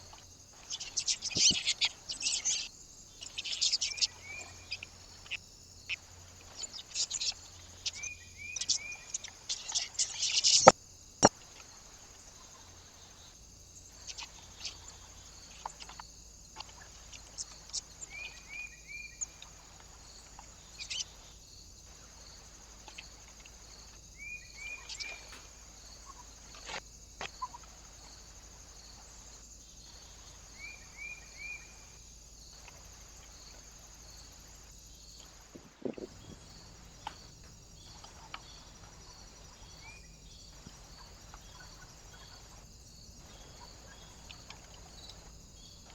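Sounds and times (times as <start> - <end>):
small birds calling: 0.0 - 45.9
steady high hiss: 0.0 - 45.9
short chirps and clicks: 10.4 - 10.7.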